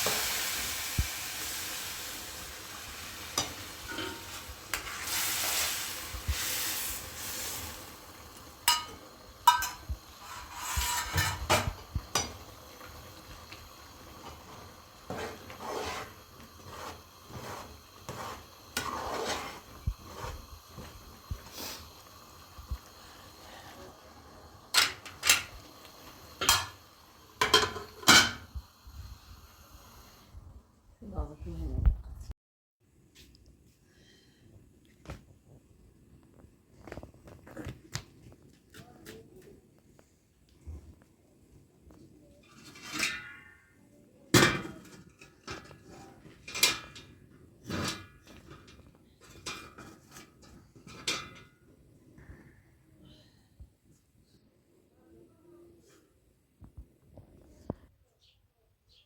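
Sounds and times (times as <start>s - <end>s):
dishes and utensils clattering: 3.3s - 5.1s, 8.6s - 12.4s, 26.4s - 26.8s, 27.4s - 28.5s, 42.5s - 43.6s, 44.4s - 51.6s
dishes and utensils clinking: 3.3s - 5.1s, 8.6s - 12.4s, 26.4s - 26.8s, 27.4s - 28.5s.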